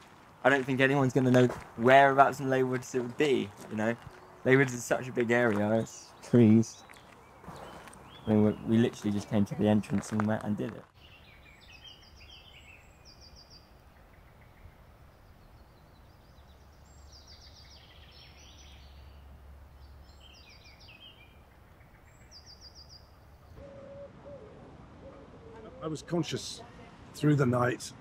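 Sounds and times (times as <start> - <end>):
faint songbird phrases: 2.2 - 9.9, 11.0 - 23.7.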